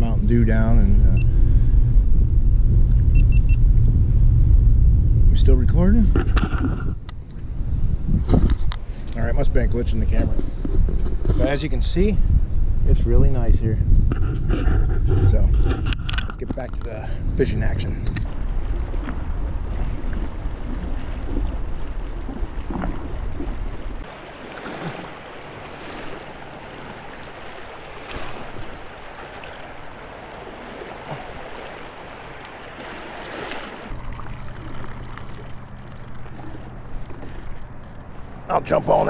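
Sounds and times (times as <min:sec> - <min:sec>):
steady low hum: 0:00.0 - 0:28.1, 0:33.8 - 0:39.0
water around a small boat: 0:00.0 - 0:39.0
wind buffeting microphone: 0:00.0 - 0:39.0.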